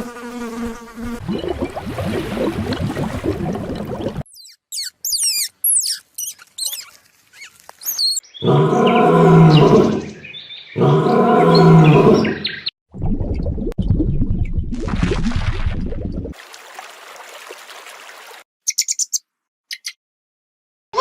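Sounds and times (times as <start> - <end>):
high chirping bird calls: 4.3 - 12.7, 18.7 - 20.0
long deep animal calls: 8.4 - 10.2, 10.8 - 12.5.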